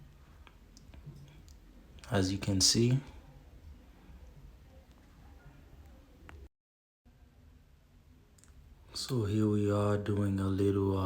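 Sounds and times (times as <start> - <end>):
faint background noise: 0.0 - 6.5, 7.1 - 11.0
faint click: 8.4 - 8.6.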